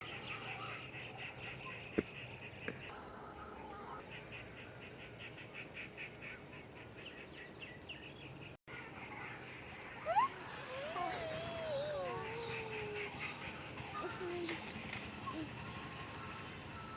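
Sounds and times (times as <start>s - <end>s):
high-pitched insect drone: 9.0s - 16.9s
pulsing insect chirps: 9.0s - 16.9s
wavering animal call: 10.0s - 14.6s.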